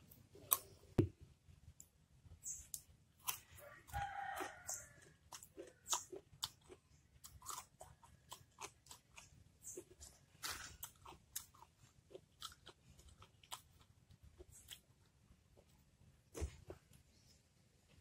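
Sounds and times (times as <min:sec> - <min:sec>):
crunchy chewing of mango slices: 0:02.6 - 0:15.1.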